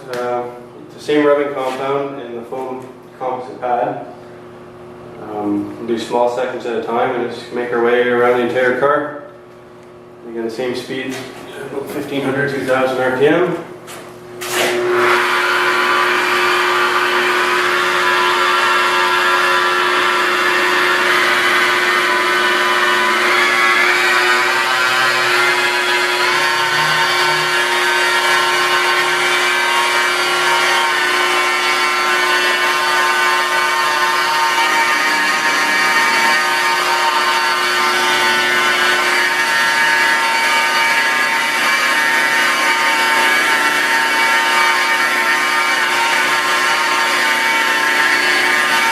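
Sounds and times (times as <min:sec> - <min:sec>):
rotary car polisher whining: 0:14.4 - 0:48.9.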